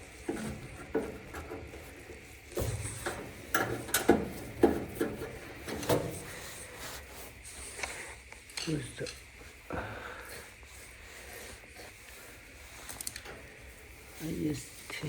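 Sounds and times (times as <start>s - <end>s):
hard parts clicking and knocking: 0.0s - 6.3s.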